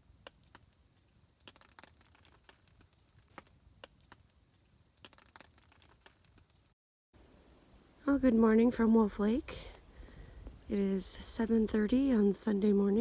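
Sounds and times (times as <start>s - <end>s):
faint crackles and ticks: 0.0s - 13.0s.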